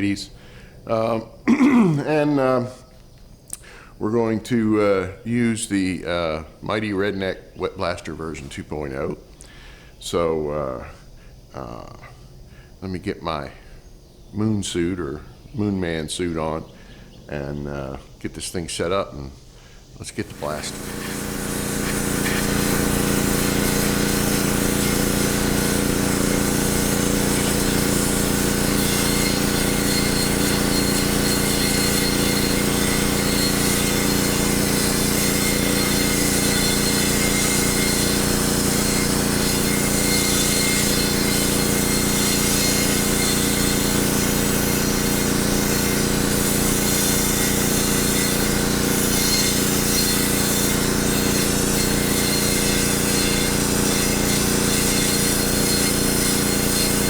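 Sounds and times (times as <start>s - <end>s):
water and grit spraying: 20.0s - 57.0s
machine hum: 20.1s - 57.0s.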